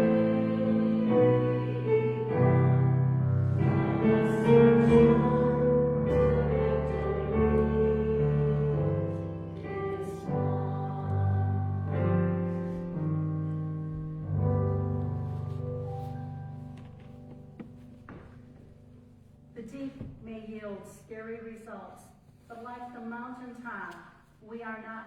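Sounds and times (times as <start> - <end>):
hymn on church keyboard: 0.0 - 18.9.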